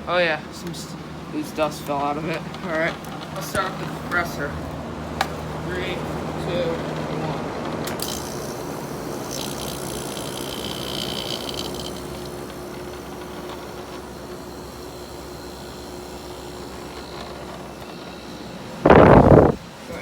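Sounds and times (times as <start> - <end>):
air conditioner humming: 0.0 - 20.0
high hiss: 18.8 - 19.6.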